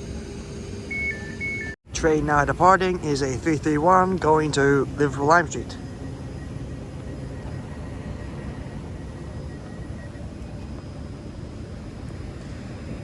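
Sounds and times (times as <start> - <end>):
electric train rumbling: 0.0 - 13.0
faint high whine: 0.0 - 13.0.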